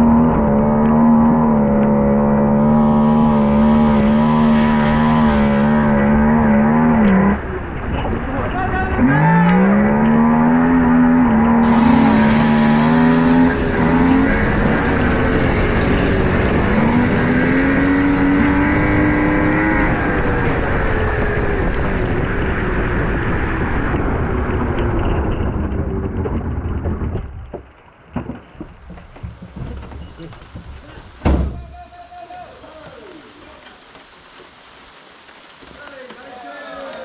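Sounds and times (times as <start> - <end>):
car engine revving: 0.0 - 8.3, 9.0 - 22.6.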